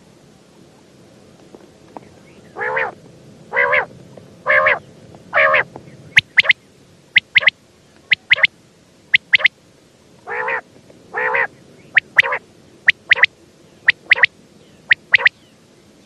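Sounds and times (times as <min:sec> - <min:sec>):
quail calling: 0:02.6 - 0:06.6, 0:07.2 - 0:07.5, 0:08.1 - 0:08.5, 0:09.1 - 0:09.5, 0:10.3 - 0:14.3, 0:14.9 - 0:15.4.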